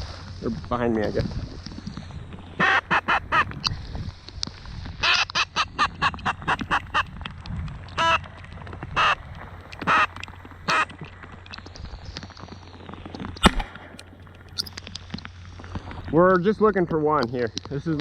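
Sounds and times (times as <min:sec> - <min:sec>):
duck quacking: 0:02.6 - 0:03.5, 0:09.8 - 0:10.1, 0:10.7 - 0:10.9.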